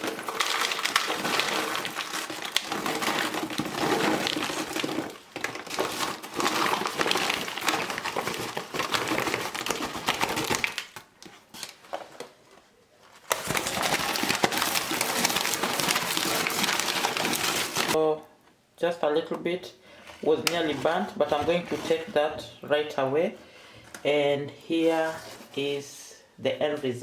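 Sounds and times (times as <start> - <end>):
popcorn shifting in bag: 0.0 - 11.6, 13.2 - 18.0
paper bag crinkling: 0.0 - 12.3, 13.1 - 18.0.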